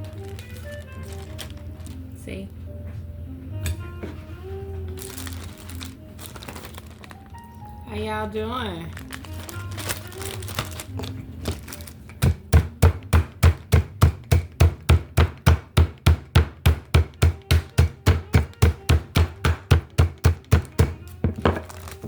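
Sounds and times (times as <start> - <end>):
meat pounded in plastic bag: 9.0 - 22.0.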